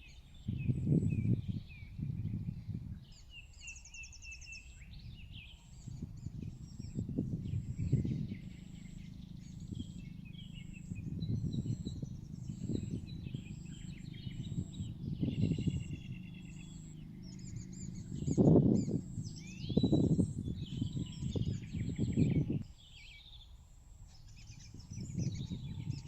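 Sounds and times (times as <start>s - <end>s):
wind rumble on microphone: 0.0s - 22.8s, 24.1s - 26.0s
small birds chirping: 0.0s - 26.0s
faint high pulsing: 4.6s - 22.6s.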